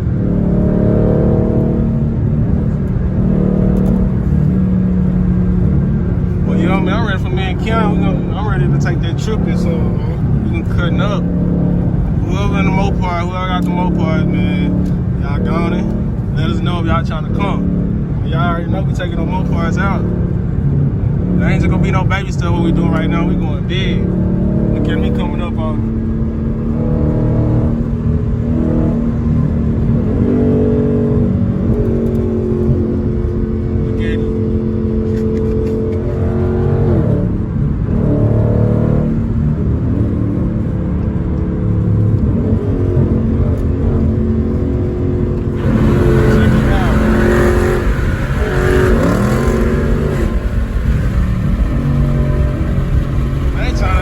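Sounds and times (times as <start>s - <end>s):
car engine exhaust note: 0.0s - 54.0s.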